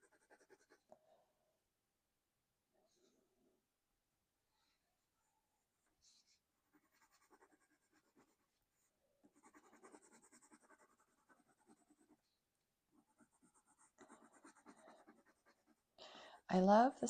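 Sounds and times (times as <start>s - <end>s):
colored pencil scratching on paper: 0.0s - 0.9s, 6.0s - 16.0s.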